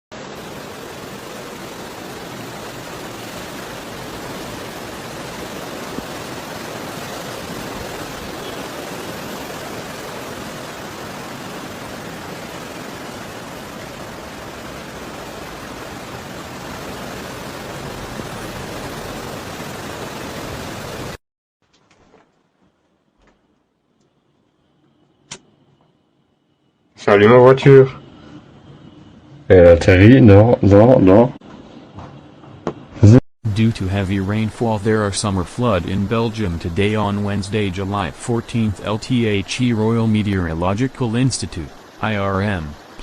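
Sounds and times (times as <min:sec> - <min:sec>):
floodwater rushing: 0:00.2 - 0:21.2, 0:33.5 - 0:43.0.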